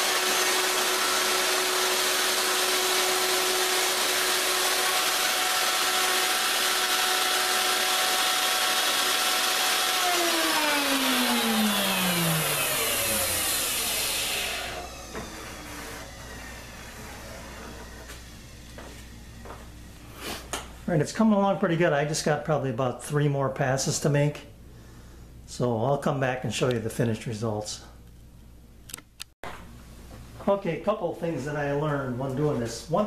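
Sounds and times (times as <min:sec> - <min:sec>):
router cutting wood: 0:00.0 - 0:19.6
router motor whine spinning down: 0:00.0 - 0:20.1.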